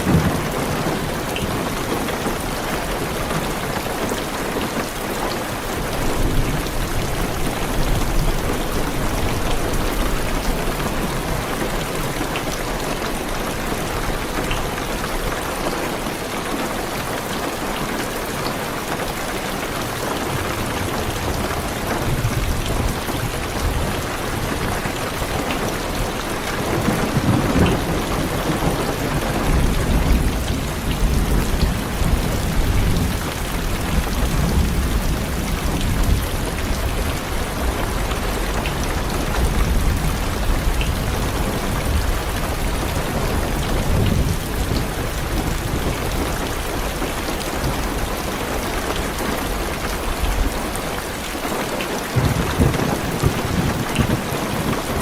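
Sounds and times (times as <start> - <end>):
thunder rumbling: 0.0 - 3.5, 20.2 - 48.6, 52.1 - 55.0
heavy rain on car roof: 0.0 - 55.0.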